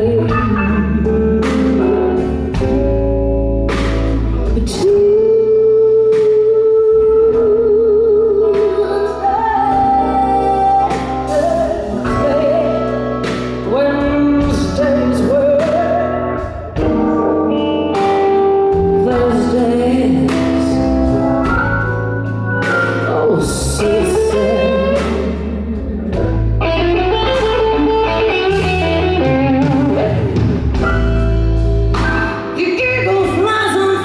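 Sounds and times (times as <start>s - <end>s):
woman singing with vibrato: 0.0s - 2.4s, 4.4s - 16.9s, 18.6s - 21.4s, 22.9s - 30.3s, 32.3s - 34.0s
bass: 0.0s - 34.0s
drums: 0.0s - 34.0s
guitar: 0.0s - 34.0s
organ: 0.0s - 34.0s.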